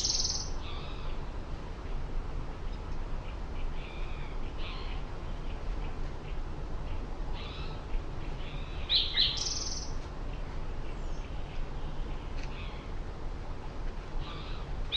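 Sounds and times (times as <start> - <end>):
buzzy bird trill: 0.0 - 0.9
low background rumble: 0.0 - 14.9
songbirds chirping: 0.0 - 14.9.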